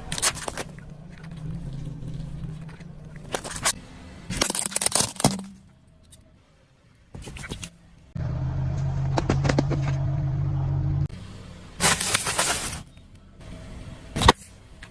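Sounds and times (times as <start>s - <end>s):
brittle object crunching under car: 0.0s - 5.7s, 11.8s - 12.9s
car engine running low: 8.1s - 14.2s.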